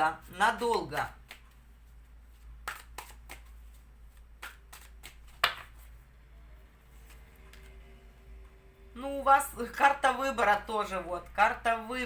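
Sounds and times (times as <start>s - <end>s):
cards rustling and snapping: 0.6s - 6.0s.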